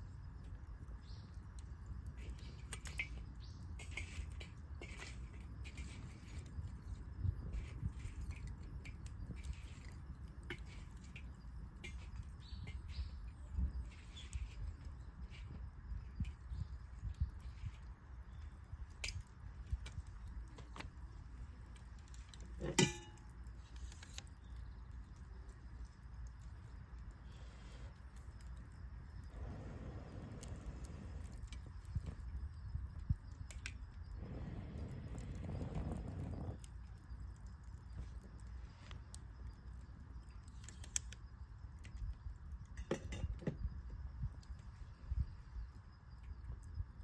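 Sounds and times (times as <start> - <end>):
wood fire crackling: 0.0 - 47.0
low steady rumble: 28.7 - 33.2, 34.0 - 36.8.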